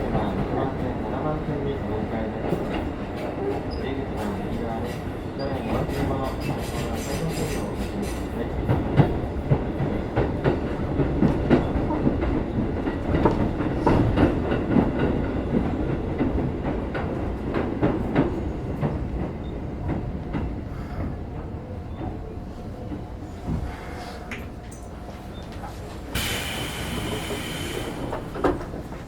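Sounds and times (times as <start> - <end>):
train rumble: 0.0 - 29.0
train wheels clicking over rail joints: 26.1 - 29.0.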